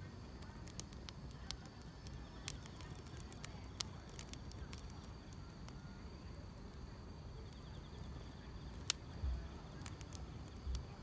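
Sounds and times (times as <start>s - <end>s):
crickets chirping: 0.0s - 11.0s
wood fire crackling: 0.0s - 11.0s.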